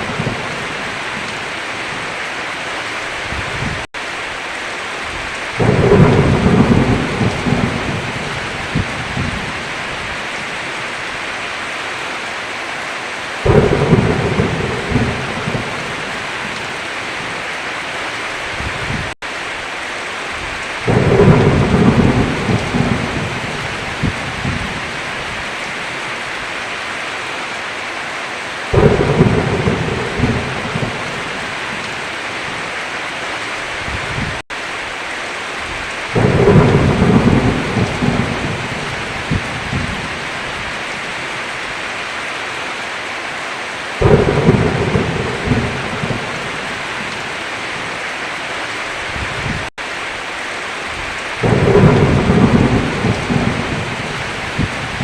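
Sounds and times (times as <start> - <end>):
thunder rumbling: 0.0 - 2.0, 5.1 - 10.5, 13.4 - 17.4, 20.4 - 26.0, 28.7 - 32.6, 35.6 - 41.2, 44.0 - 48.0, 50.9 - 55.0
heavy rain: 0.0 - 55.0.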